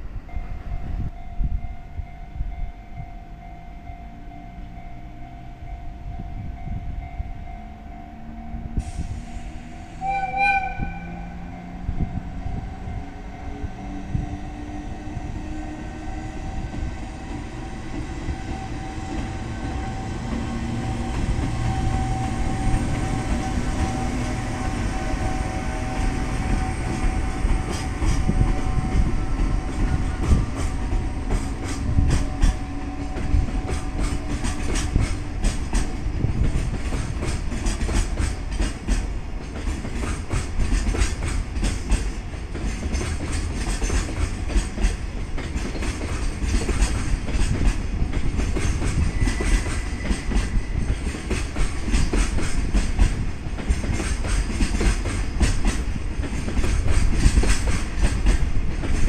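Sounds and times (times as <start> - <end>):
train wheels rumbling on rails: 0.0 - 59.0
train horn blast: 8.1 - 35.2.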